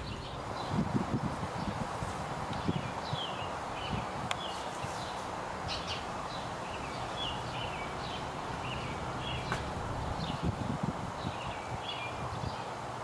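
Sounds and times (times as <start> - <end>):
small birds chirping: 0.0 - 12.8
soft bumps: 9.4 - 9.8.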